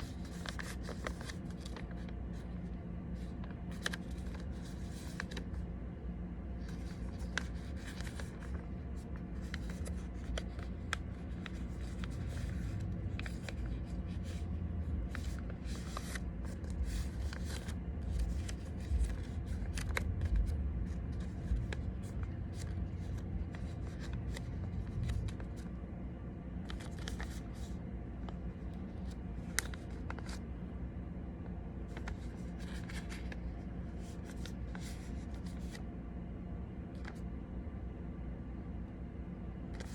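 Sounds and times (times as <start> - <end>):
paper being folded: 0.0 - 5.6, 6.6 - 25.8, 26.6 - 30.4, 31.9 - 35.8, 36.9 - 37.2
steady low hum: 0.0 - 39.9.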